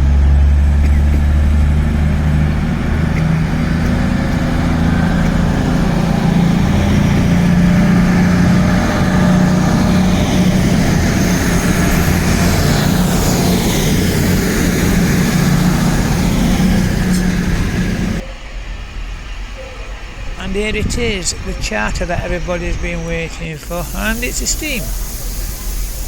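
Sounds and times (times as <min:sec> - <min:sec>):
diesel train engine droning: 0:00.0 - 0:26.0.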